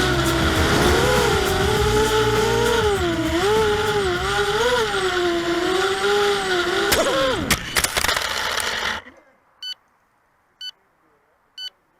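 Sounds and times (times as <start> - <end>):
quadcopter motors whining: 0.0 - 9.1.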